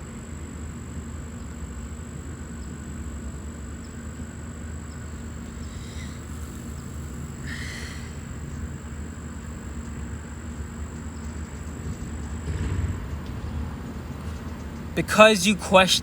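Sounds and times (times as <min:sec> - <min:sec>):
thin high whine: 0:05.1 - 0:11.7, 0:15.0 - 0:16.0.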